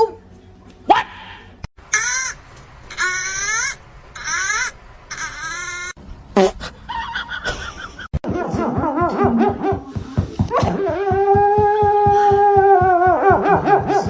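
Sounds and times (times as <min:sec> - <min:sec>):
pet animal crying out: 0:01.9 - 0:06.0.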